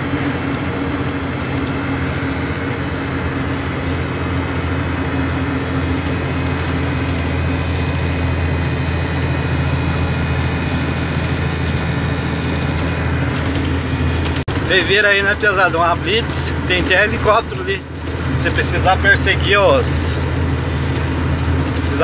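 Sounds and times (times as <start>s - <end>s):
road noise: 0.0s - 22.0s
truck diesel engine running: 0.0s - 22.0s.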